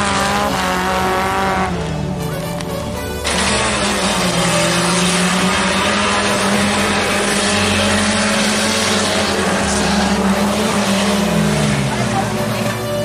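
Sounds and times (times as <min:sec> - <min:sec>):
car engines revving hard: 0:00.0 - 0:13.0.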